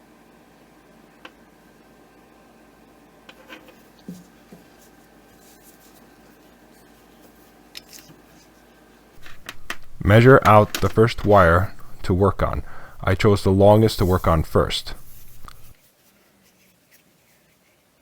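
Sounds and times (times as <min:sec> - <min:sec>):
rubbing of rubber covers: 0:13.8 - 0:18.0.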